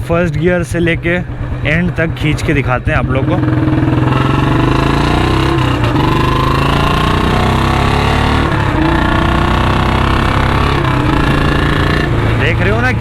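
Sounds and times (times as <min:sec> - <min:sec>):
motorcycle engine screaming: 0:02.9 - 0:13.0.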